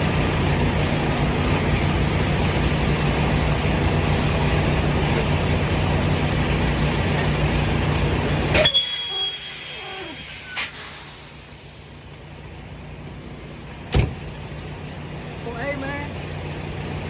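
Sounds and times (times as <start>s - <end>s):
truck diesel engine running: 0.0s - 17.0s
air brake hiss: 8.6s - 12.1s.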